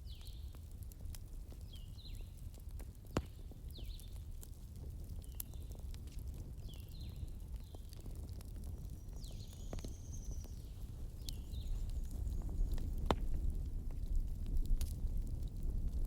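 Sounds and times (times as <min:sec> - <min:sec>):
fire crackles and pops: 0:00.0 - 0:16.0
fire rumbling: 0:00.0 - 0:16.0
high squeals from burning logs: 0:08.9 - 0:12.9.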